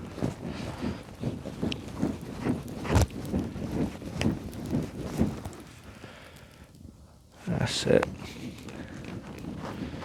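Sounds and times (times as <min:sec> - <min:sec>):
firewood knocks and rustles: 0:01.6 - 0:05.7.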